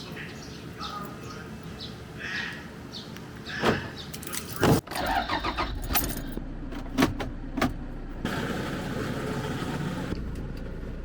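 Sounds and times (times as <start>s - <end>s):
car engine starting and running: 4.6s - 11.0s
keys jangling: 5.8s - 6.4s.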